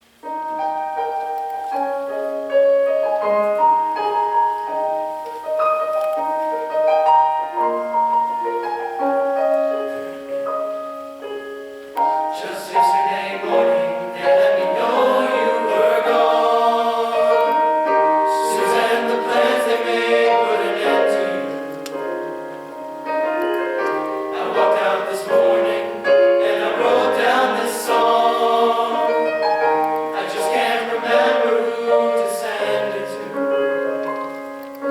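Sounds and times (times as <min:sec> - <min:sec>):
piano notes: 0:00.0 - 0:34.9
men's chorus singing: 0:12.3 - 0:21.7, 0:23.9 - 0:33.8.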